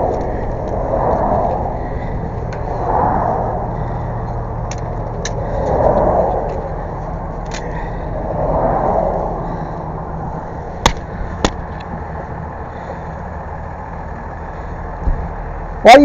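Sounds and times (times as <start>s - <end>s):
road traffic passing: 0.0s - 16.0s
truck engine idling: 9.4s - 15.8s.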